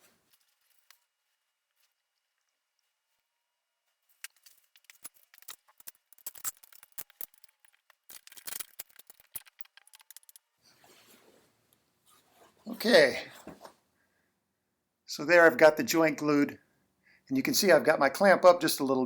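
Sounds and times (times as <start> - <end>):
clamp clicking and rattling: 4.2 - 10.4.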